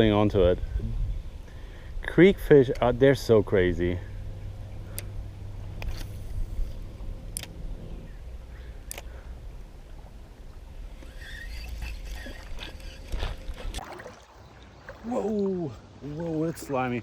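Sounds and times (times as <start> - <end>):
sharp clicks: 7.3 - 7.6, 8.8 - 9.1
water sloshing around legs: 11.0 - 17.0.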